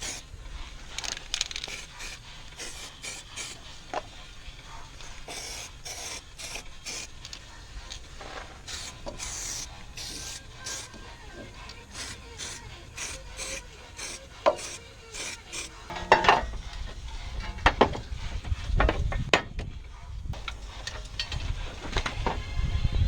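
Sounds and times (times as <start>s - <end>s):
metal scraping strokes: 0.0s - 19.7s
metal knocks and clunks: 15.9s - 22.5s.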